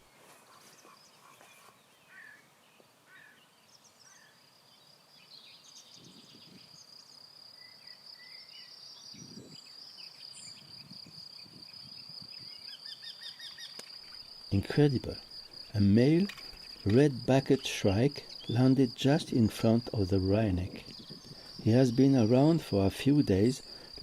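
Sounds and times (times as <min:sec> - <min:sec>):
short bird calls: 0:00.0 - 0:02.5, 0:03.1 - 0:04.4
insects trilling: 0:03.1 - 0:24.0.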